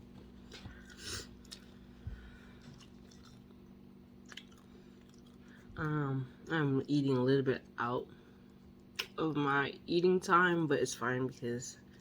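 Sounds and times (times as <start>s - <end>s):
close-up chewing: 0.3s - 5.8s.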